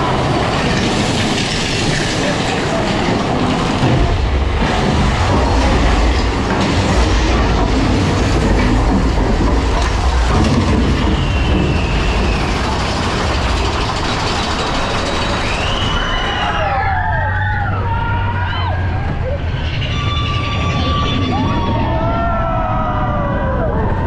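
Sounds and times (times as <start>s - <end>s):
rushing air: 0.0s - 16.4s
roller coaster wheels rumbling: 0.0s - 24.0s
faint high squeal: 15.2s - 23.1s.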